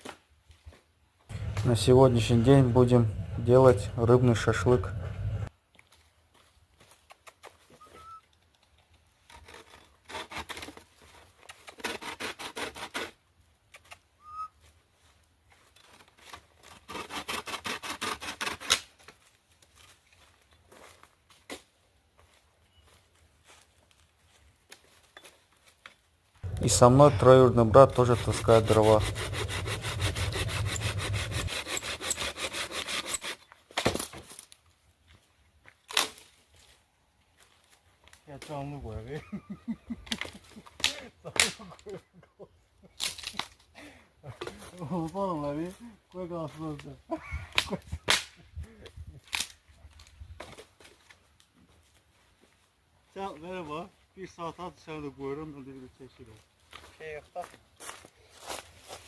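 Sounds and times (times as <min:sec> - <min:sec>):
hand saw rasping through firewood: 0:01.3 - 0:05.5, 0:09.3 - 0:10.8, 0:11.6 - 0:13.2, 0:16.6 - 0:18.9, 0:26.4 - 0:33.5.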